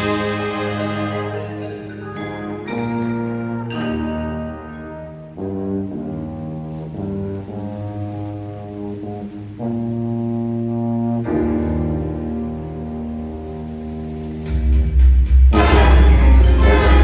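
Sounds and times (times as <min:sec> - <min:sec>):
wind ensemble playing chords: 0:00.0 - 0:06.7, 0:15.6 - 0:17.0.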